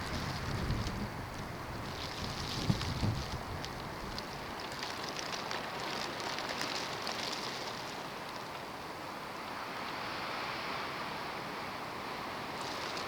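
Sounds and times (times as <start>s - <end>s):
snowstorm wind blowing: 0.0s - 4.6s.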